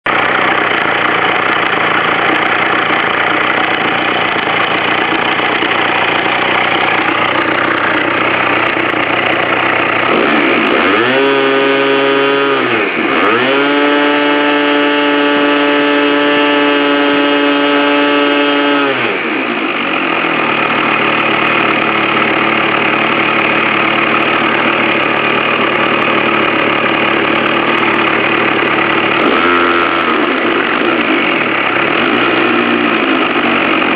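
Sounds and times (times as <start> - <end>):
model engine idling and revving: 0.0 - 33.9.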